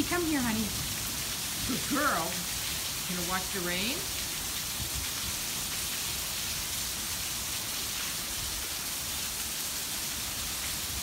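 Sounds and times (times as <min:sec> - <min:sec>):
torrential rain: 0:00.0 - 0:11.0.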